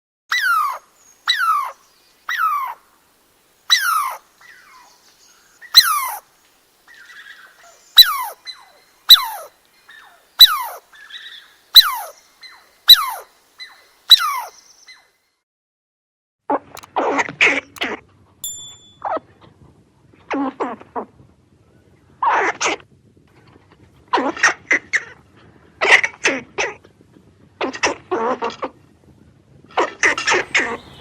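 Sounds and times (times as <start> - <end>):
squirrel calling: 0.3 - 2.8, 3.7 - 6.3, 6.9 - 15.0, 30.0 - 31.0.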